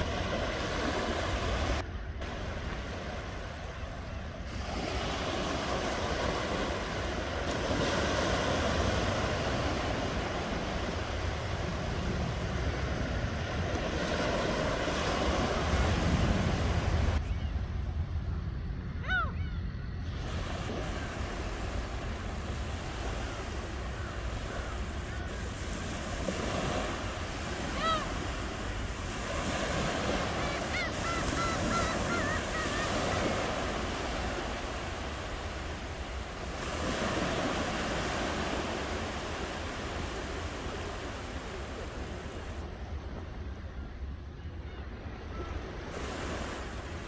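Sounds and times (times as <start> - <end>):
ocean waves washing onto shore: 0.0 - 17.2, 20.0 - 43.7, 45.2 - 47.0
bird calling: 19.0 - 20.0, 22.8 - 42.1.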